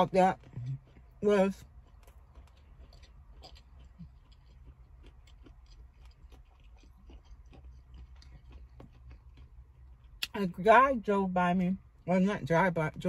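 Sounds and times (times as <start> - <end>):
chewing with mouth clicks: 0.0 - 10.4
low steady hum: 0.0 - 13.0.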